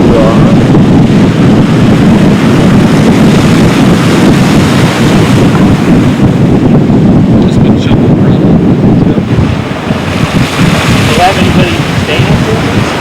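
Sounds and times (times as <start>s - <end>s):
helicopter rotors and turbines: 0.0s - 13.0s
wind buffeting microphone: 0.0s - 13.0s.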